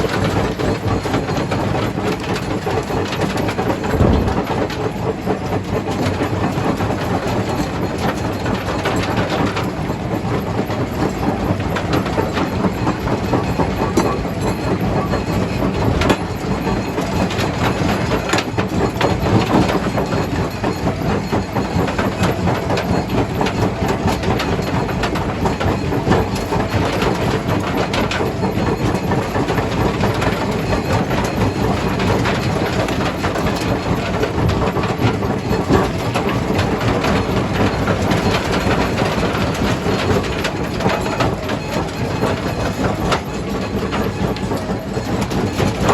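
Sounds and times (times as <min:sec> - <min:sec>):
crusher mechanical rumble: 0:03.6 - 0:06.6.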